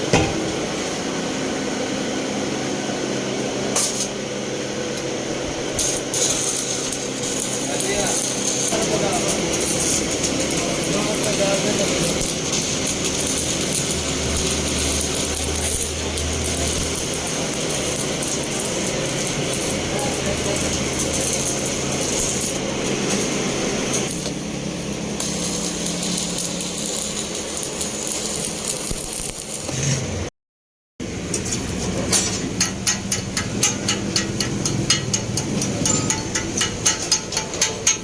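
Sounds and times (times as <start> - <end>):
machine rattling and whining: 5.5 - 24.4.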